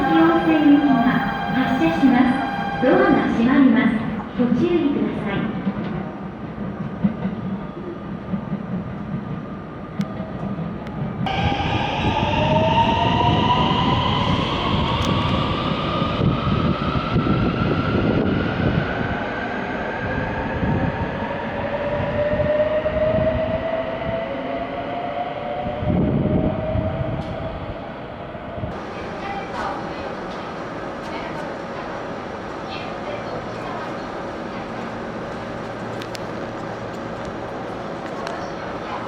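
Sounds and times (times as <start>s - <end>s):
wheels rumbling on rails: 25.6s - 39.0s.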